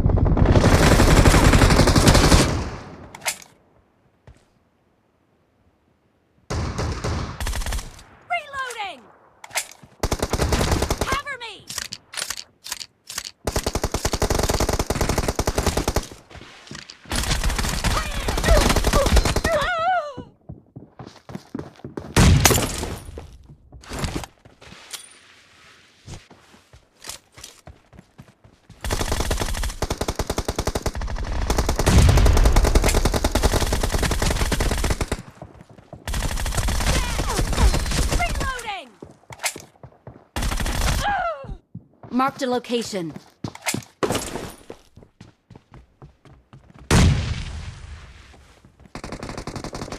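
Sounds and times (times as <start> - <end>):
video game automatic gunfire: 28.8 - 35.3.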